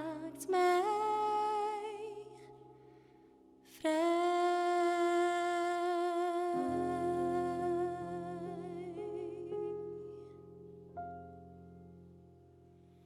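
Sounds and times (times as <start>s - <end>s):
woman singing with vibrato: 3.8s - 10.0s.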